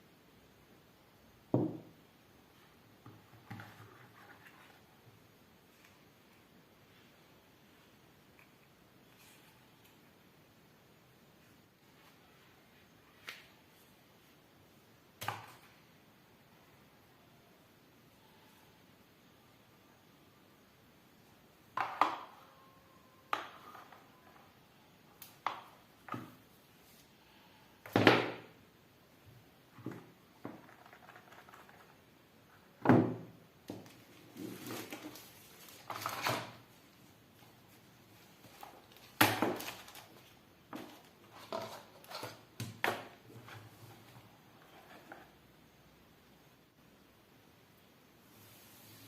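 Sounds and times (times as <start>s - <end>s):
packaging rustling: 34.0s - 36.6s.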